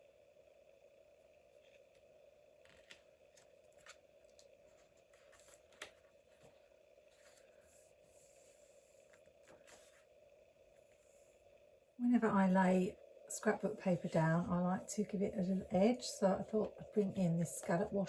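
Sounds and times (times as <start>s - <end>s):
faint steady hum: 0.0s - 18.0s
paper rustling: 2.6s - 7.8s, 9.0s - 10.1s.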